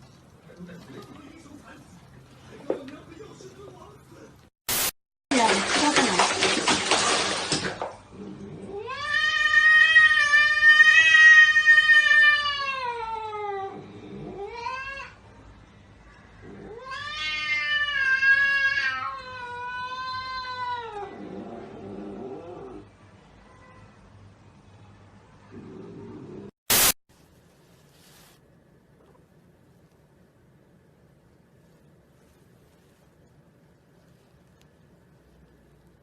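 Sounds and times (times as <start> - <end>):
cat yowling: 8.7 - 15.2, 16.6 - 21.2.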